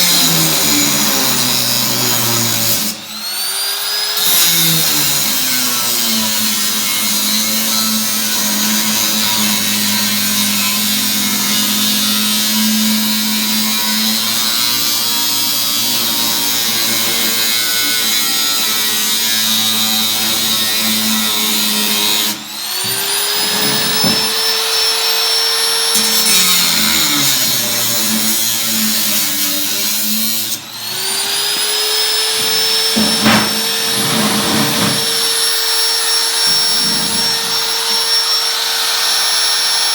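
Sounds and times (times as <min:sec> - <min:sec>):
power tool whining on sheet steel: 0:00.0 - 0:39.9.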